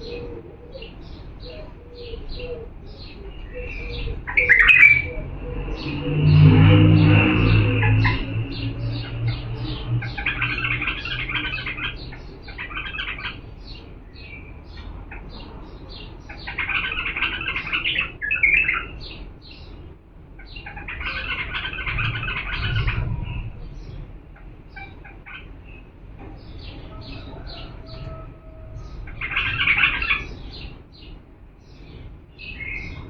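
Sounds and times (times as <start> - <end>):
bird warbling: 0.0 - 13.9, 20.4 - 25.9, 26.5 - 30.8.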